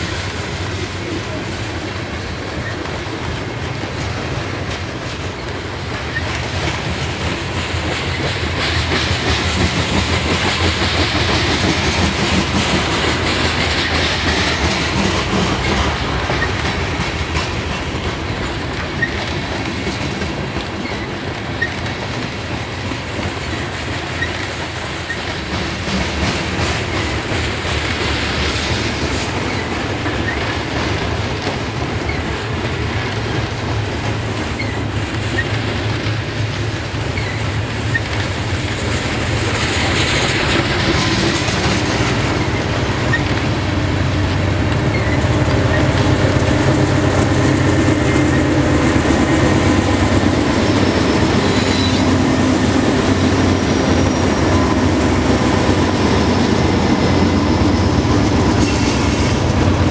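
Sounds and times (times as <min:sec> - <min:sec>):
diesel locomotive engine hum: 0:00.0 - 0:59.9
train wheels clicking over rail joints: 0:00.0 - 0:59.9
high-pitched wheel squeals: 0:51.4 - 0:52.1.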